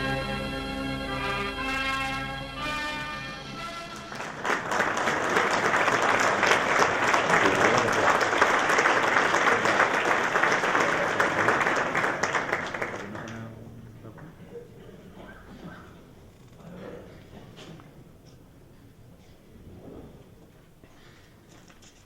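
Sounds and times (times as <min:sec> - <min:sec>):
audience applauding: 0:03.6 - 0:13.6.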